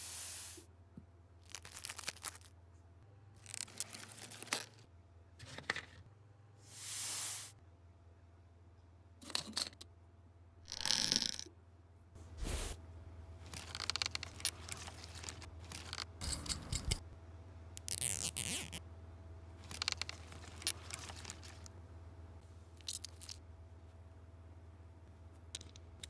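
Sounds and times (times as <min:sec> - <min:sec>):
small objects scraping and clicking: 0:01.5 - 0:02.5, 0:03.4 - 0:04.8, 0:10.7 - 0:11.5, 0:12.4 - 0:12.8, 0:13.4 - 0:17.1, 0:17.8 - 0:18.8, 0:19.6 - 0:21.7, 0:22.8 - 0:23.4, 0:25.5 - 0:26.0.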